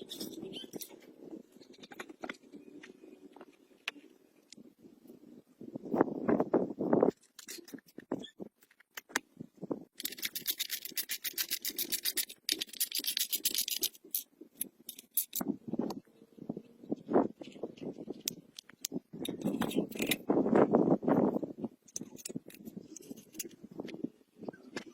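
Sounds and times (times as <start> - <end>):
rapid scraping strokes by hand: 10.0 - 14.3.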